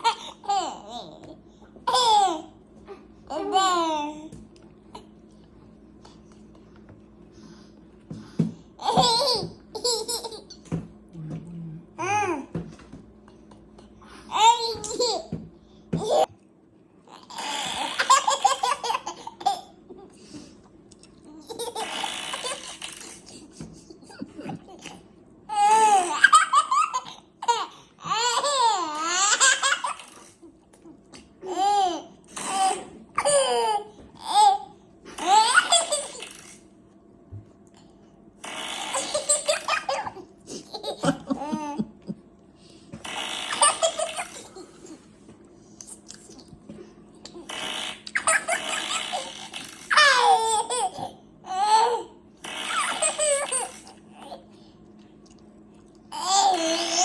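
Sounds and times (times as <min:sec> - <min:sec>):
baby laughing: 0:00.0 - 0:01.2, 0:01.9 - 0:02.5, 0:08.8 - 0:10.6, 0:14.3 - 0:15.4, 0:17.1 - 0:20.1, 0:21.3 - 0:30.4, 0:31.4 - 0:36.4, 0:38.9 - 0:42.2, 0:43.5 - 0:45.0, 0:48.1 - 0:54.4, 0:56.1 - 0:57.0.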